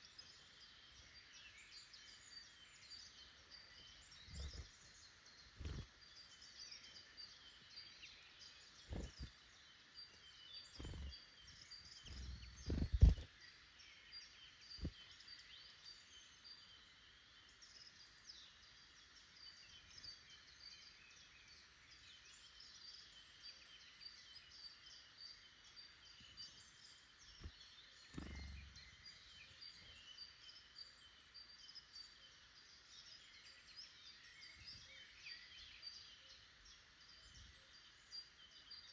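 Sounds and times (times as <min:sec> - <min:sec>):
birds chirping and calling: 0:04.2 - 0:04.8, 0:08.9 - 0:09.3, 0:10.7 - 0:11.2, 0:11.9 - 0:13.3, 0:27.3 - 0:30.1
dull low thumps: 0:12.1 - 0:13.3.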